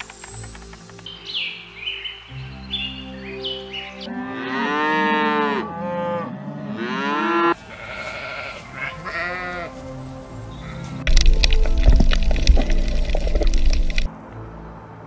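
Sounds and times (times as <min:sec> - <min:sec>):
cattle mooing: 0:04.1 - 0:09.7
sheep bleating: 0:07.7 - 0:09.8.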